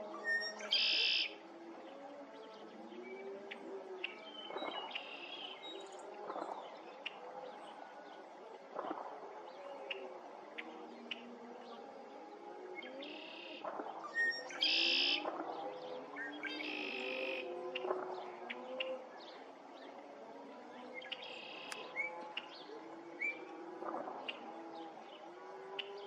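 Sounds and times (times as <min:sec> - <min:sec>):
many birds calling: 0:00.1 - 0:01.4, 0:12.8 - 0:20.0.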